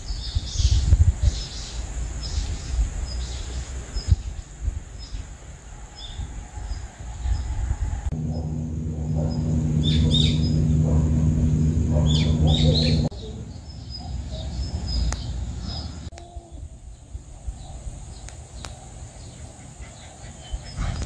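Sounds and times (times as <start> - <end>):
small birds chirping: 0.0 - 5.4, 8.2 - 21.0
steady low hum: 6.7 - 21.0.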